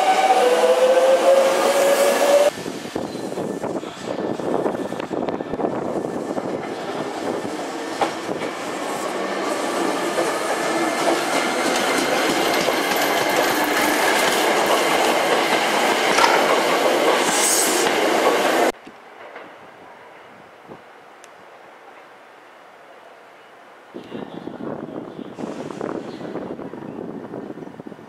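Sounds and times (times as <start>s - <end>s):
train wheels clattering over rail joints: 11.0s - 18.0s.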